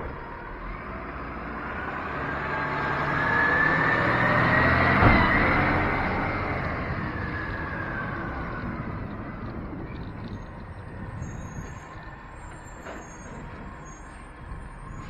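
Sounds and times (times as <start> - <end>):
vehicle driving past: 0.0 - 10.2.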